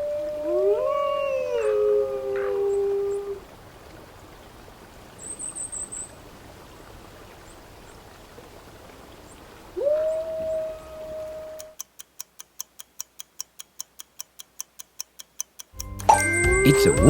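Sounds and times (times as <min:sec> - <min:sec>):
wolf howling: 0:00.0 - 0:03.5, 0:09.8 - 0:11.8
steady outdoor hiss: 0:00.0 - 0:17.0
high chirps: 0:15.7 - 0:17.0.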